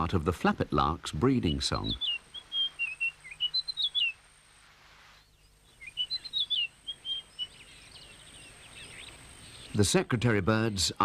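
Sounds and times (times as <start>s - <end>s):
lark singing whistled notes: 1.3s - 4.2s, 5.1s - 9.8s.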